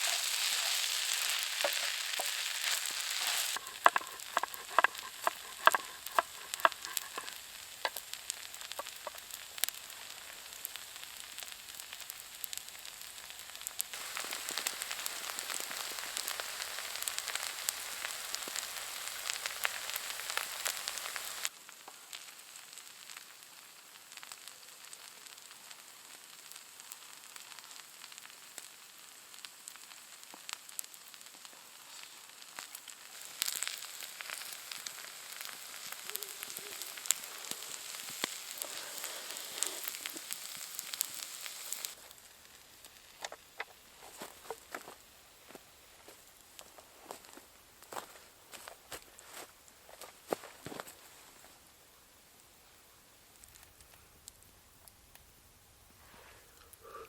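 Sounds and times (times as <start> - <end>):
sharp pops: 0.0 - 9.9
food sizzling in a pan: 0.0 - 53.8.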